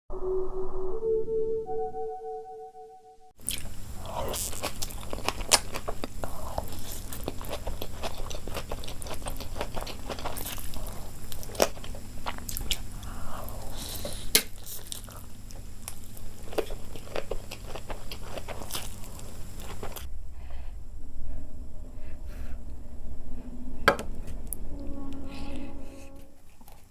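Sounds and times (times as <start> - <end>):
person chewing crunchy food: 3.4 - 20.1.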